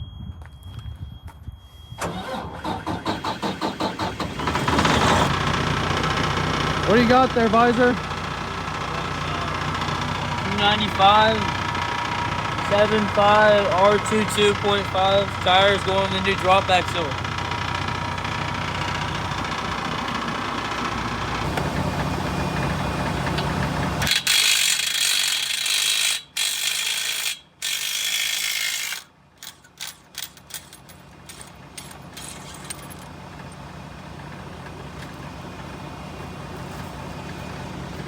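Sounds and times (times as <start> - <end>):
diesel truck engine idling: 2.2 - 24.1, 30.8 - 38.0
impact wrench running: 24.0 - 33.1.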